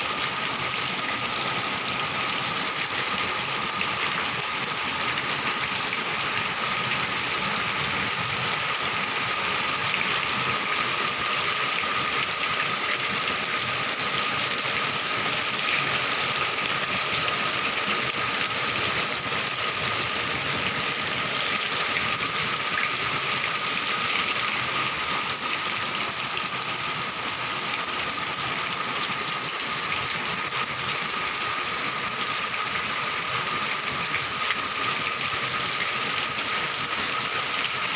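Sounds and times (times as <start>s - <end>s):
gushing runoff water: 0.0s - 37.9s.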